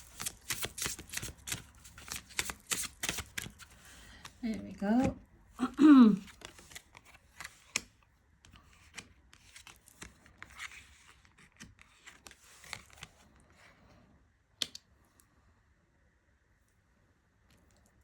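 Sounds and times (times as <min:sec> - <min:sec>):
cards rustling and clicking: 0:00.0 - 0:05.2, 0:06.2 - 0:13.2.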